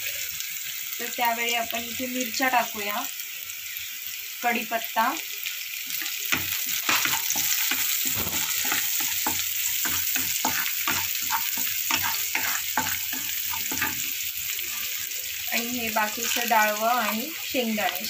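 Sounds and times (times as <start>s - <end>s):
vegetables sizzling in hot oil: 0.0s - 18.0s
spatula scraping and knocking pan: 5.9s - 14.2s, 15.6s - 17.2s.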